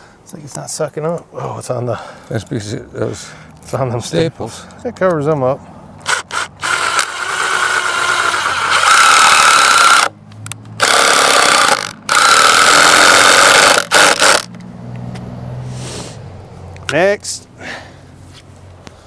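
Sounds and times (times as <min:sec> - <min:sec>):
cordless drill motor whine: 0:06.0 - 0:10.1, 0:10.8 - 0:14.5.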